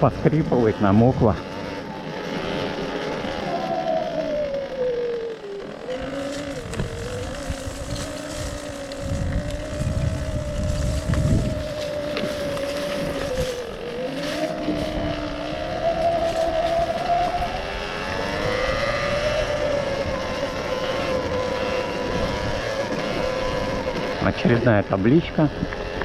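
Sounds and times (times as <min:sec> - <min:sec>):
electric motorbike motor whining: 0:00.0 - 0:26.0
low rumble: 0:04.7 - 0:24.4.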